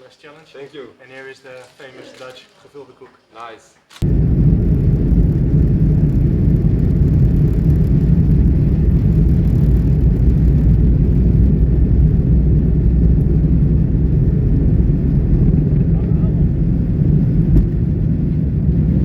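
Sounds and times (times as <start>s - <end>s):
vehicle rumbling in motion: 4.0s - 19.0s.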